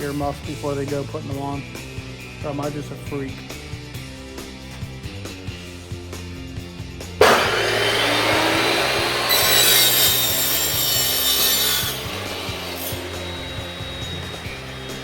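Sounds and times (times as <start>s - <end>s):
power tool grinding metal: 7.2s - 15.0s.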